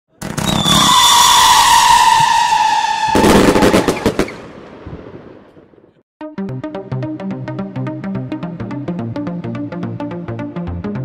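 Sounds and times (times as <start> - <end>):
firework whistle: 0.2 - 4.5
firework bangs and crackles: 0.2 - 5.8.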